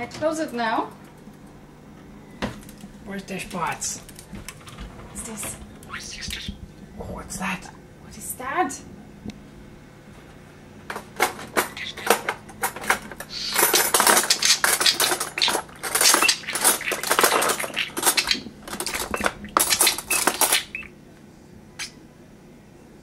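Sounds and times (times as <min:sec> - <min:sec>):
metal cutlery clattering: 0:11.3 - 0:20.7.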